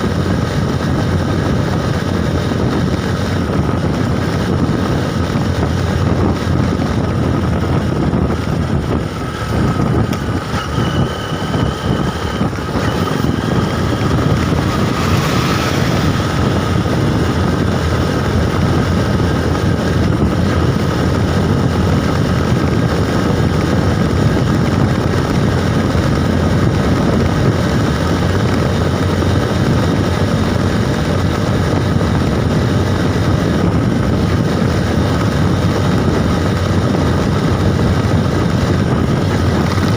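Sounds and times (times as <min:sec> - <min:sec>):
road and vehicle running noise: 0:00.0 - 0:39.9
wind buffeting microphone: 0:00.0 - 0:39.9
brief high tone: 0:10.5 - 0:13.8.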